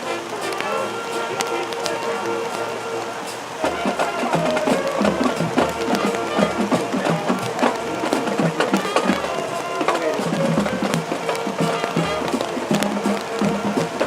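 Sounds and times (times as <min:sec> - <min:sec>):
marching band playing: 0:00.0 - 0:14.0
quick drum hits: 0:03.6 - 0:14.0.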